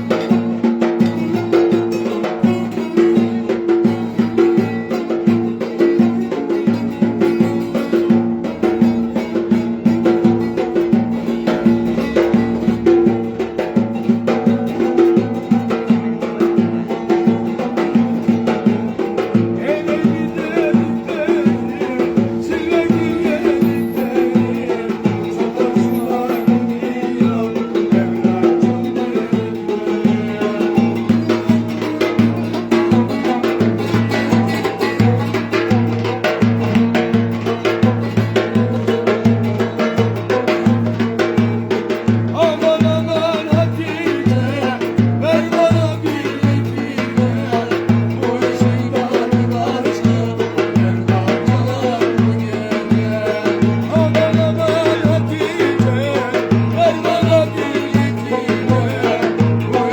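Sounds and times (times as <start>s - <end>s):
ornamented folk melody: 0.0s - 59.9s
percussion beat: 0.0s - 59.9s.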